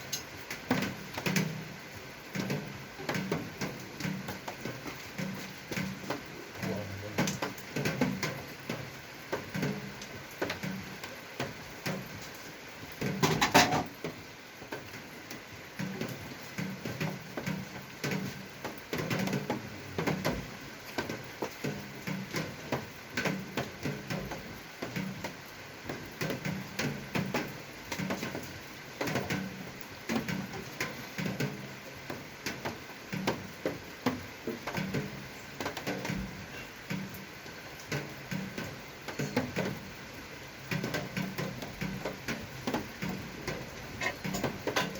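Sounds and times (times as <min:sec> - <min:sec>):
objects clicking and knocking: 0:13.0 - 0:13.9, 0:40.7 - 0:44.9
objects clattering: 0:13.2 - 0:13.9.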